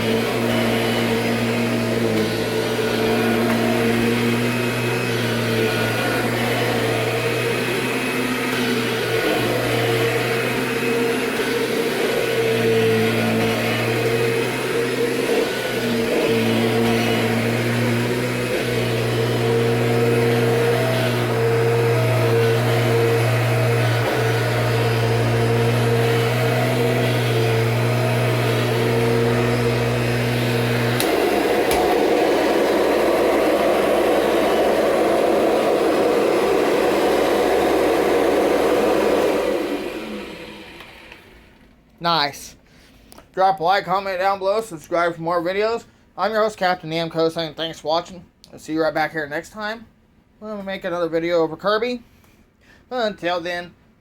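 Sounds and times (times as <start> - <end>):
upright vacuum motor hum: 0.0 - 41.8.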